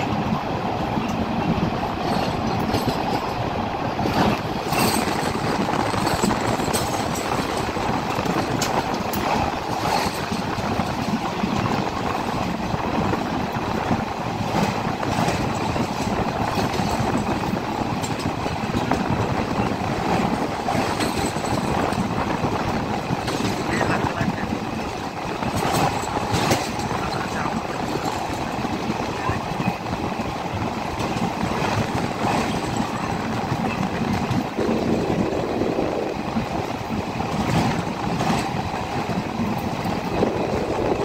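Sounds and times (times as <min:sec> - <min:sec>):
sharp clicks of train wheels: 0:00.0 - 0:41.0
train wheels rumbling on track: 0:00.0 - 0:41.0.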